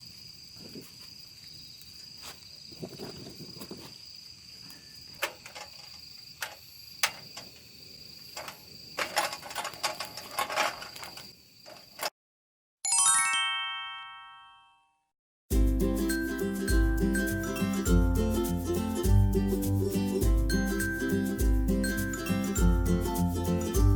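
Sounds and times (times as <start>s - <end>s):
crickets trilling: 0.0s - 12.1s
descending chime notes: 12.9s - 14.9s.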